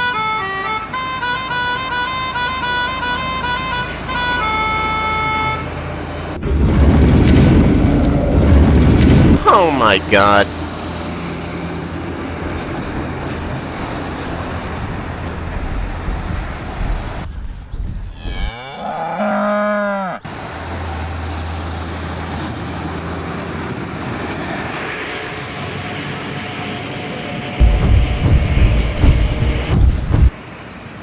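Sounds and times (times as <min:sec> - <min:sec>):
heavy truck road noise: 0:00.0 - 0:17.6, 0:20.3 - 0:31.0.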